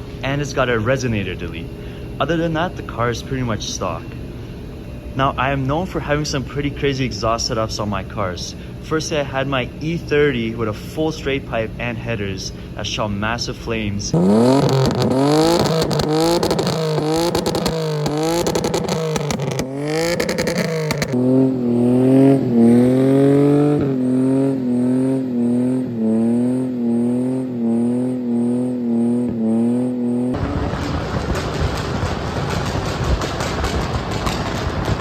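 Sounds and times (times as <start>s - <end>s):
car engine at high revs: 14.1s - 35.0s
car exhaust revving with pops: 14.1s - 35.0s.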